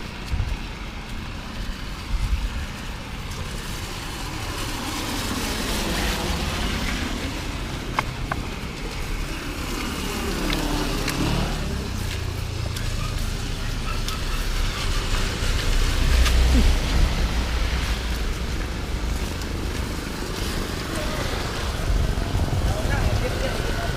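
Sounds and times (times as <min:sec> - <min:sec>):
vehicle passing: 0:01.4 - 0:23.9
rain hiss: 0:08.6 - 0:22.7.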